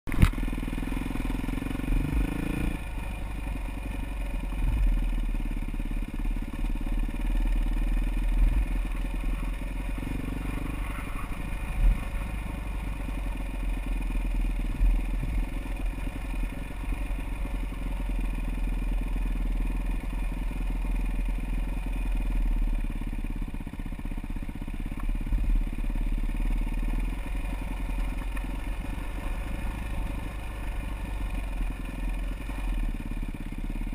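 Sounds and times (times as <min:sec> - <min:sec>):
dirt bike engine revving: 0:00.2 - 0:19.0.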